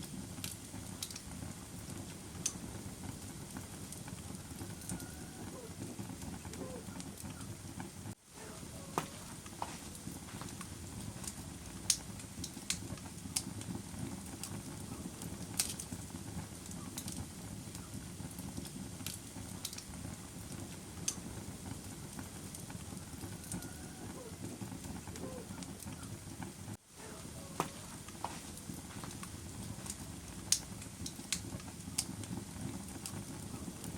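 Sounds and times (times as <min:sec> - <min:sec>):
campfire pops and snaps: 0:00.0 - 0:05.1, 0:08.7 - 0:33.9
low rumble of burning wood: 0:00.0 - 0:33.9.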